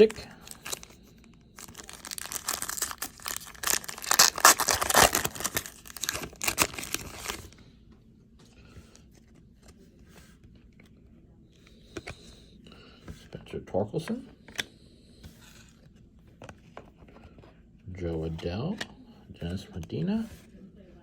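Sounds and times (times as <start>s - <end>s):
faint rustling of cards: 0.0s - 21.0s
wrapper tearing and crinkling: 1.6s - 7.5s.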